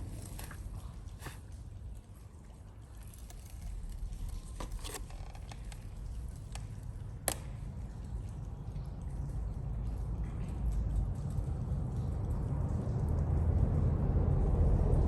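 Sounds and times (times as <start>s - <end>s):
low rumble: 7.9s - 15.0s.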